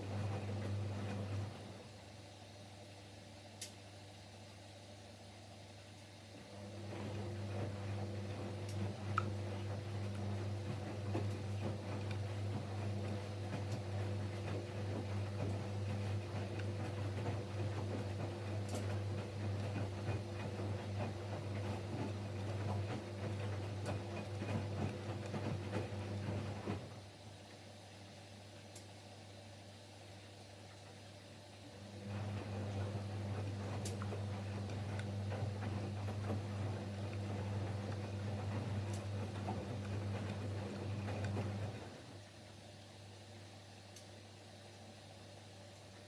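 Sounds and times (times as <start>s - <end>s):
washing machine motor hum: 0.0s - 2.6s, 6.3s - 27.4s, 31.2s - 43.2s
ticks and splashes of wet laundry: 6.6s - 27.0s, 31.8s - 42.4s.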